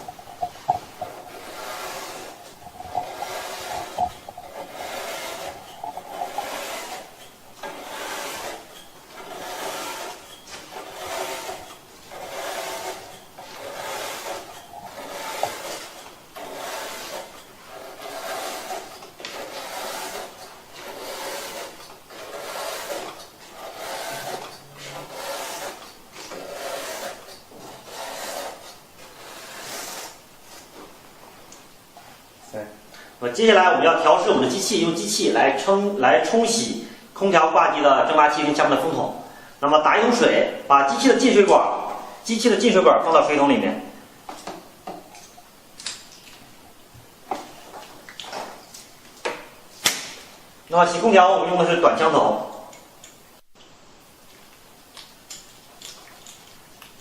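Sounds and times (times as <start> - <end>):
brush scrubbing metal fins: 0.0 - 31.4.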